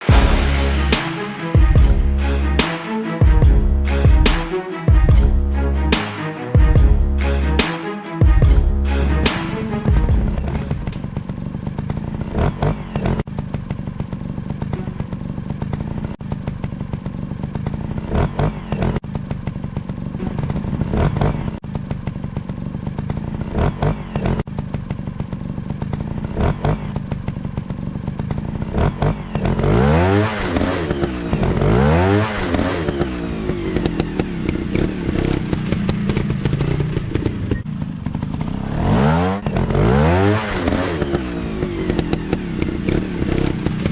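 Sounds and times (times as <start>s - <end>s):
motocross bike engines revving: 10.3s - 43.9s.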